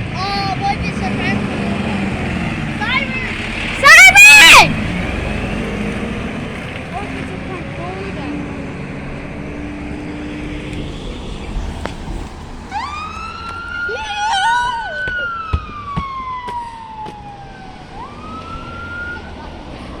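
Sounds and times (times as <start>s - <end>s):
fire engine siren wailing: 0.0s - 20.0s
traffic noise: 0.0s - 20.0s
wavering siren tone: 10.4s - 19.3s.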